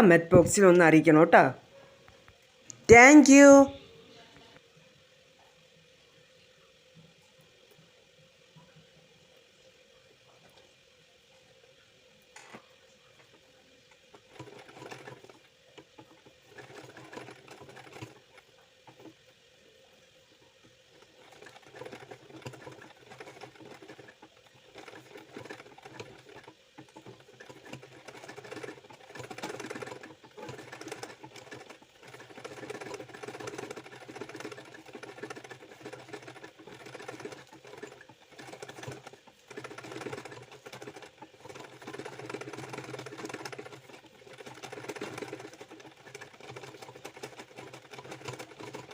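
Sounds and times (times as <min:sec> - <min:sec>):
sewing machine stitching: 0:14.0 - 0:19.4, 0:20.6 - 0:48.9.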